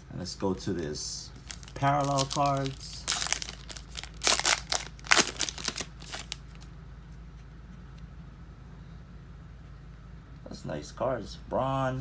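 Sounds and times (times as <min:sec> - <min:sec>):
faint low hum: 0:00.0 - 0:12.0
foil pack crinkling and rustling: 0:01.4 - 0:06.7.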